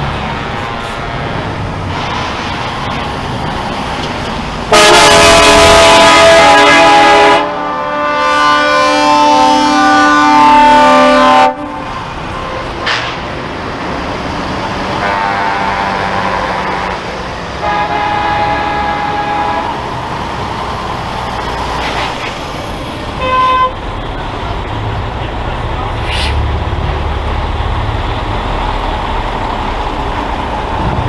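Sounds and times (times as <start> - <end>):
passing truck engines: 0.0 - 31.0
truck air horns: 4.7 - 13.4, 14.9 - 20.0, 23.1 - 23.9, 25.8 - 26.6.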